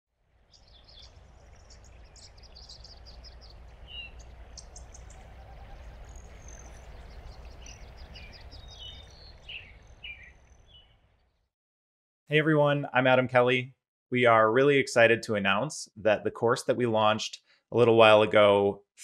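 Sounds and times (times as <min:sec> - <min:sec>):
low rumble: 0:00.4 - 0:10.7
small birds chirping: 0:00.4 - 0:11.5.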